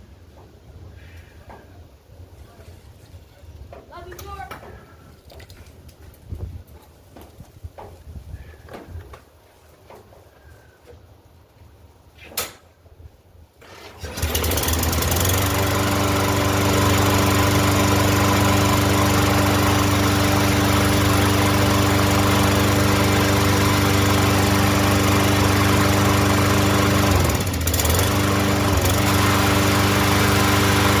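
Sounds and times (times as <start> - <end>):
sharp click: 12.2 - 12.7
lawn mower engine running: 13.6 - 31.0.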